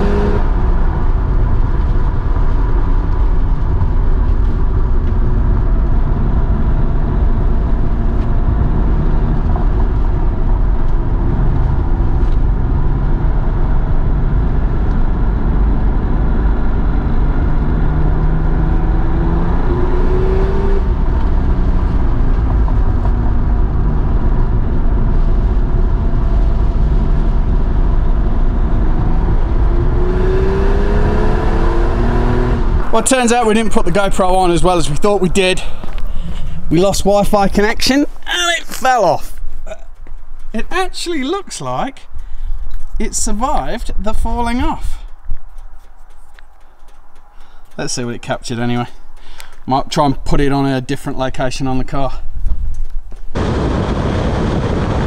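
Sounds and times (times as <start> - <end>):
car engine running hard: 0.0 - 37.7.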